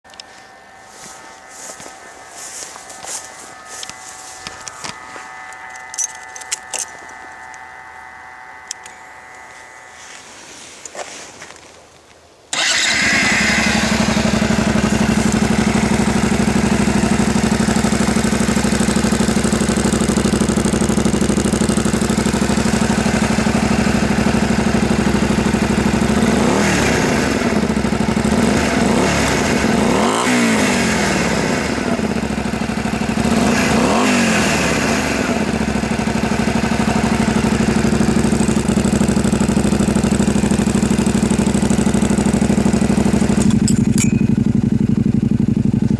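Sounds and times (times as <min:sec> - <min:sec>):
motorcycle engine idling: 0:12.5 - 0:45.9
motorcycle engine revving: 0:12.5 - 0:45.9.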